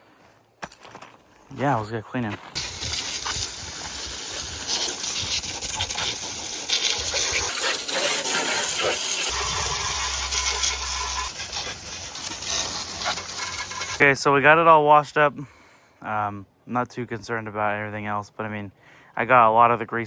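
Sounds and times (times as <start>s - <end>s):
water spraying into engine bay: 2.6s - 14.0s.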